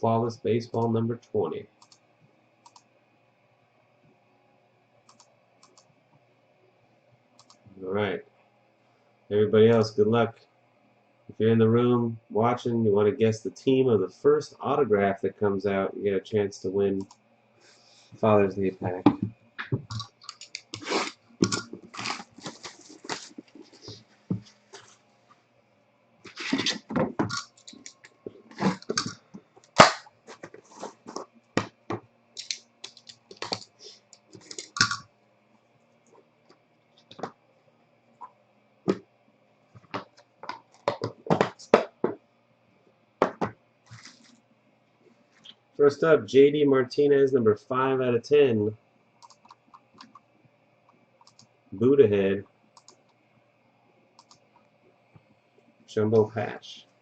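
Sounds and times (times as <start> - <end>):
packaging crinkling and tearing: 20.8 - 23.4.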